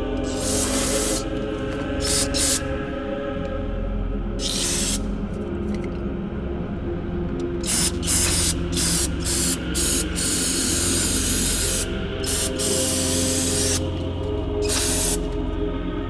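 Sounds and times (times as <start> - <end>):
background music: 0.0 - 16.0
aerosol can spraying: 0.2 - 2.8, 4.4 - 5.1, 7.6 - 15.4.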